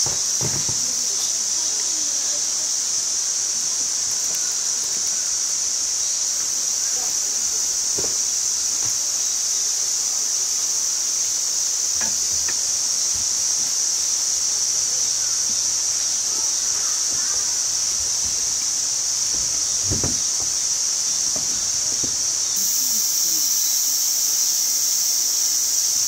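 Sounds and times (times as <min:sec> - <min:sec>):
insects droning: 0:00.0 - 0:26.0
faint knocks: 0:19.3 - 0:22.3.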